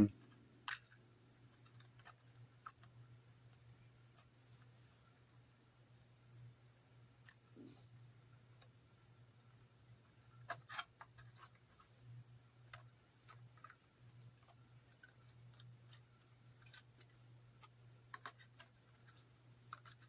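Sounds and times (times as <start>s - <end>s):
low steady hum: 0.0s - 20.0s
plastic parts clicking and tapping: 0.7s - 3.0s, 12.6s - 20.0s.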